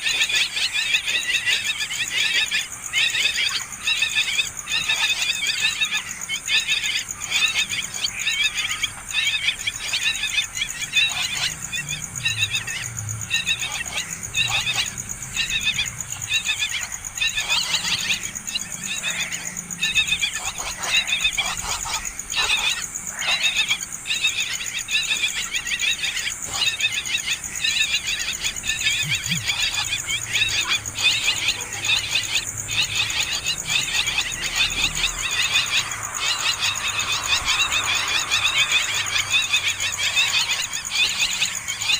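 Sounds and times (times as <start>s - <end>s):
nestling birds begging calls: 0.0s - 41.9s.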